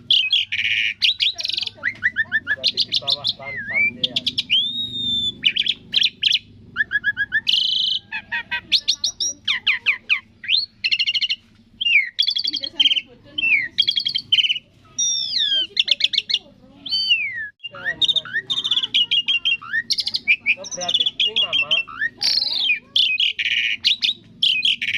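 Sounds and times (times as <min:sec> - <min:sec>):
starling singing: 0:00.0 - 0:24.9.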